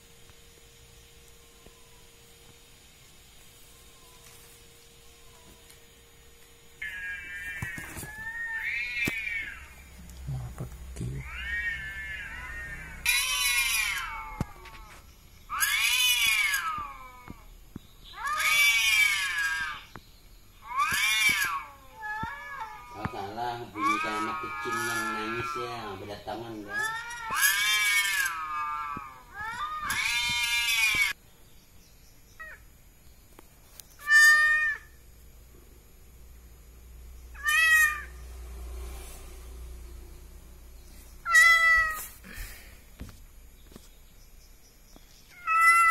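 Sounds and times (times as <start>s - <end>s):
kitten meowing: 20.6s - 25.9s, 26.6s - 31.2s, 37.4s - 38.1s, 41.2s - 42.1s, 45.3s - 45.9s.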